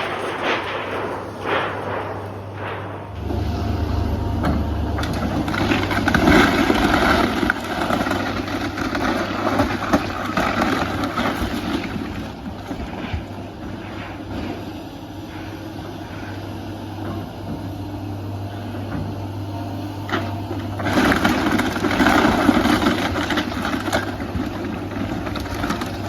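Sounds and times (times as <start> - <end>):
building crunching and cracking: 0.0 - 3.6, 5.0 - 14.6, 20.5 - 26.0
demolition machine engine hum: 0.0 - 26.0.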